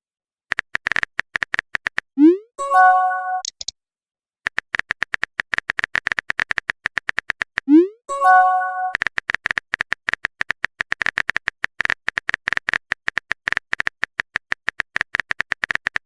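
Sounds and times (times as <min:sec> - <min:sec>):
phone keyboard typing clicks: 0:00.5 - 0:02.1, 0:03.4 - 0:03.7, 0:04.5 - 0:07.7, 0:08.9 - 0:16.0.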